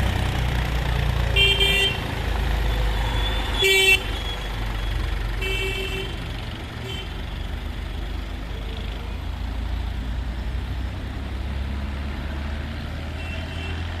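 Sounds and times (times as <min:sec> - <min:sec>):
tractor engine rumble: 0:00.0 - 0:14.0
vehicle horn tooting: 0:01.4 - 0:02.0, 0:03.6 - 0:04.1, 0:05.4 - 0:06.2, 0:06.8 - 0:07.2, 0:13.2 - 0:13.8.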